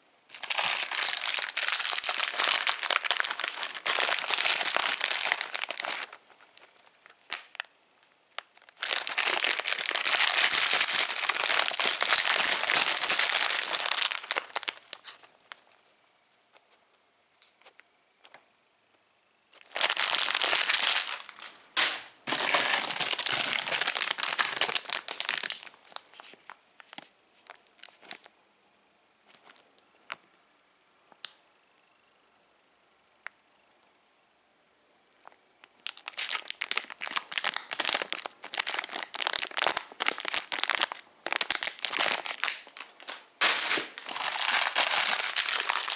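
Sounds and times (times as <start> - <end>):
plastic wrappers crinkling: 0.3 - 15.8, 19.6 - 28.3, 35.1 - 45.9.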